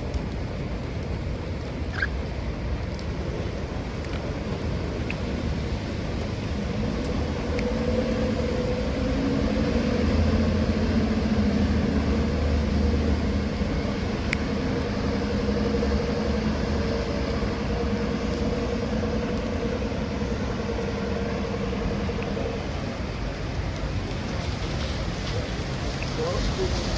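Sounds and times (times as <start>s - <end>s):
street noise: 0.0s - 26.9s.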